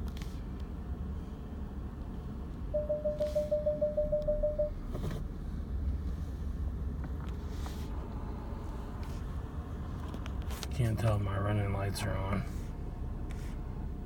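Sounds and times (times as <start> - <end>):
engine and road rumble: 0.0 - 14.0
electronic warning beeps: 2.8 - 4.7.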